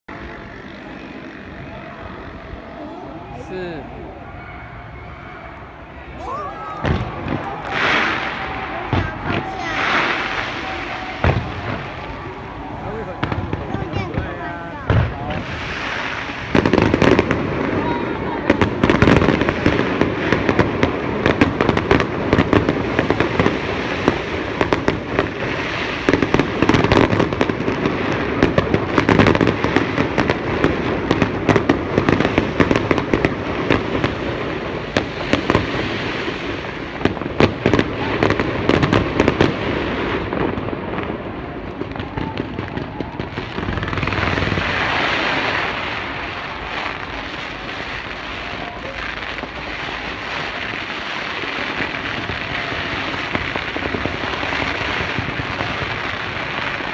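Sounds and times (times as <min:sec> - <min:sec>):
fireworks bangs and crackles: 0:00.1 - 0:56.9.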